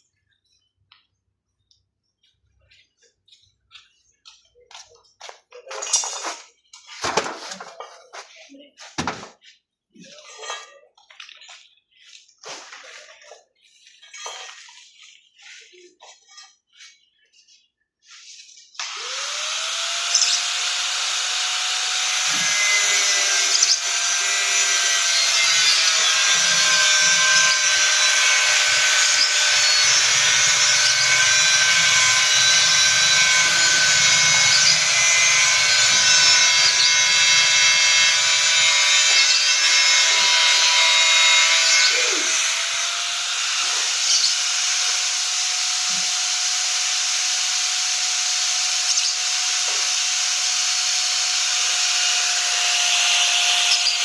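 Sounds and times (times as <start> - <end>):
handling knocks: 8.8 - 9.4
power tool motor whining: 18.8 - 54.0.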